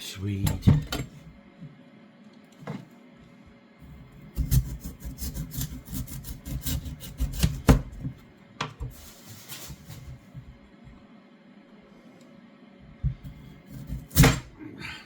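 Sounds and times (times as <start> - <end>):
knife cutting raw vegetable: 4.3 - 8.1, 13.2 - 14.5.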